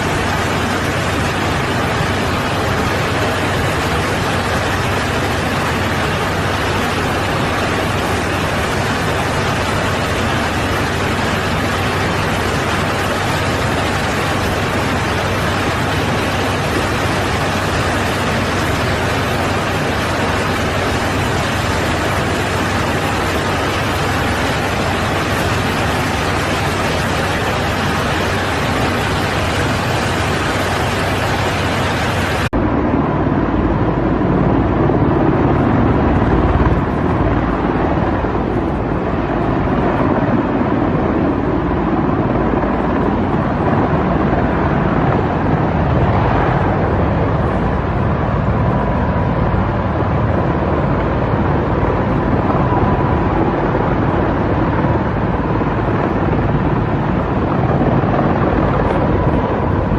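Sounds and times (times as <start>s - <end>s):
aircraft engines rushing: 0.0s - 59.9s
faint steady whine: 0.0s - 59.9s.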